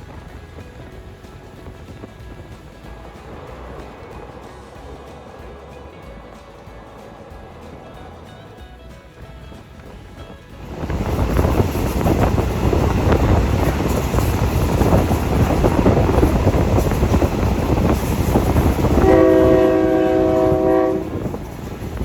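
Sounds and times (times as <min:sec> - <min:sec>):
train rumble: 0:00.0 - 0:22.0
train horn: 0:14.8 - 0:21.7.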